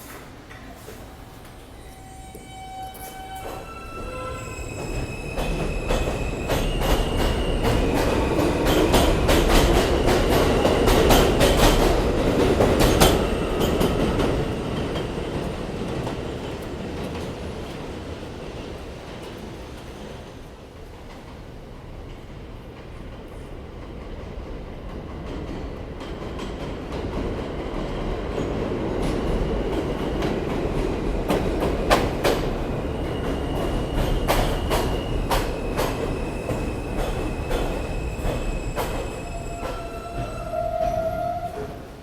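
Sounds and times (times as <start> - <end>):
subway train rumbling: 0.0 - 42.0
wheel and brake squeal: 1.8 - 7.8.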